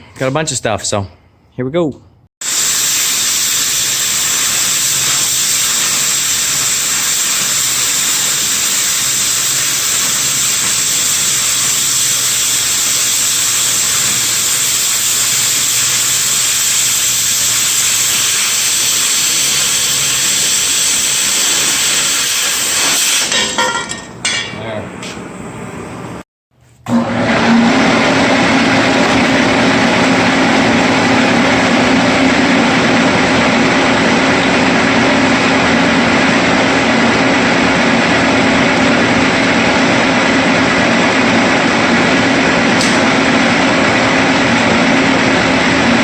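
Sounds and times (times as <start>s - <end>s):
cutting torch hissing: 2.4s - 23.3s.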